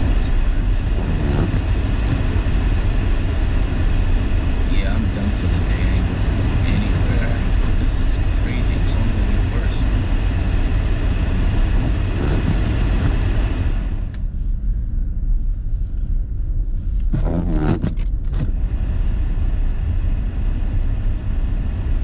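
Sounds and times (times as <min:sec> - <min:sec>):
tyres on snowy road: 0:00.0 - 0:14.2
car engine rumble: 0:00.0 - 0:22.0.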